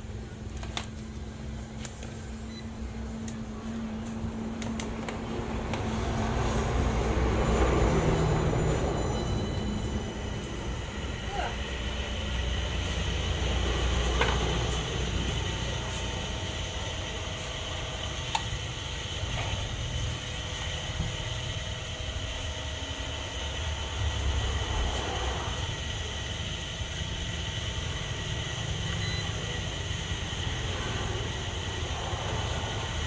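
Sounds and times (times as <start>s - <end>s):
electric motor humming and whining: 0.0s - 33.0s.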